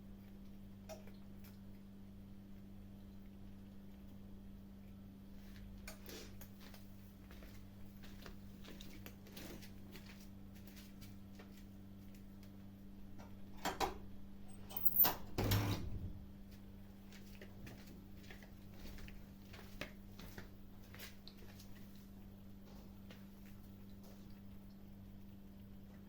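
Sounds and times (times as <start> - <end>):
kittens crunching food: 0.1 - 12.9, 16.4 - 26.0
low hum: 14.0 - 17.0.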